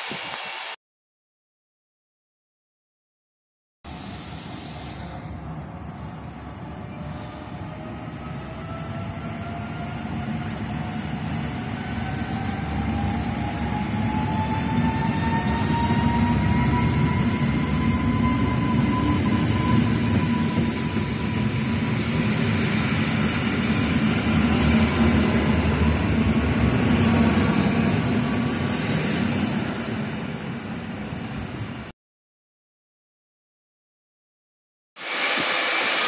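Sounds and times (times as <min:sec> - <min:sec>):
train rumbling past: 0:05.0 - 0:31.9.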